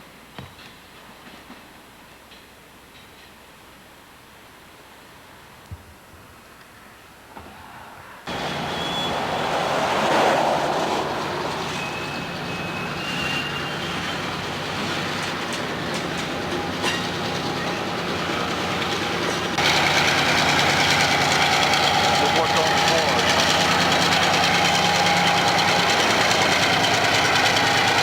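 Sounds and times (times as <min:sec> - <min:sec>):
rolling train cars: 0:00.1 - 0:05.4, 0:06.8 - 0:28.0
diesel locomotive engine drone: 0:06.8 - 0:28.0
faint wheel squeals: 0:08.3 - 0:28.0
wheel clicks over rails: 0:08.3 - 0:28.0.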